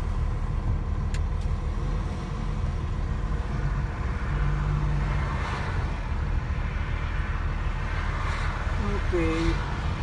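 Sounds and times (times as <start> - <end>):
truck engine rumbling: 0.0 - 4.9.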